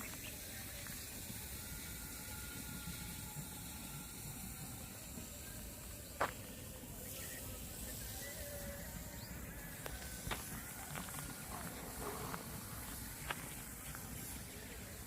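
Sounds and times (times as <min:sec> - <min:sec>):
hissing outdoor background noise: 0:00.0 - 0:15.0.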